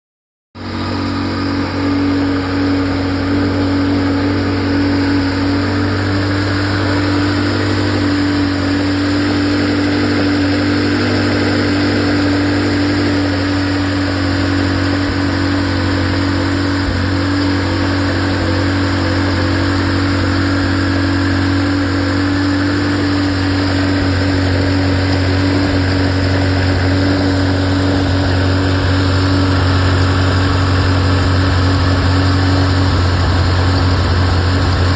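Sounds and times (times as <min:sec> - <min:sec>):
car engine idling: 0:00.6 - 0:34.9.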